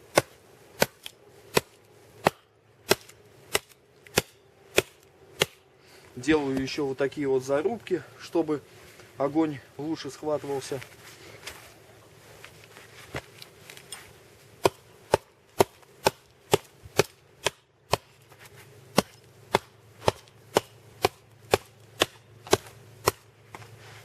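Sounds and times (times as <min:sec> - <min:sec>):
axe chopping log: 0:00.1 - 0:05.6, 0:14.6 - 0:18.2, 0:18.9 - 0:23.6.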